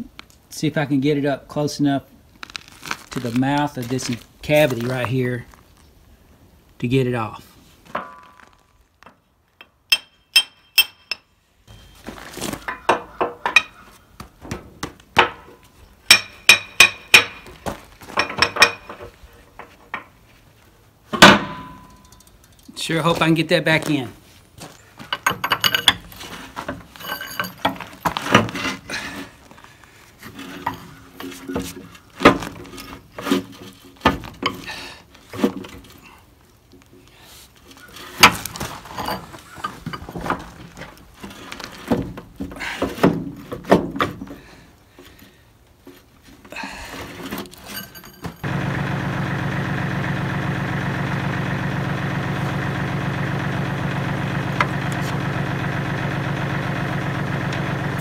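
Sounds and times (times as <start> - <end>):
metal clanks of hand tools: 9.6 - 11.3, 18.2 - 20.1, 21.2 - 22.8, 25.1 - 26.1, 26.7 - 28.4
tractor diesel engine idling: 48.4 - 58.0.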